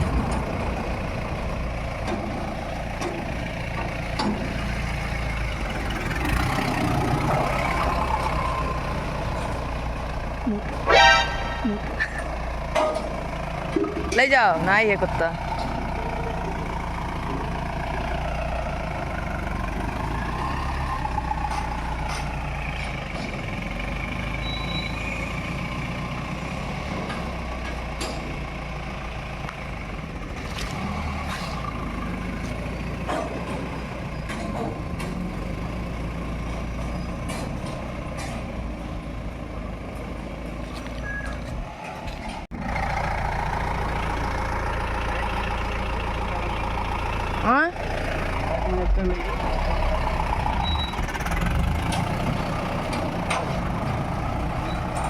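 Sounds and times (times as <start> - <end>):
pickup engine running: 27.6 - 55.0.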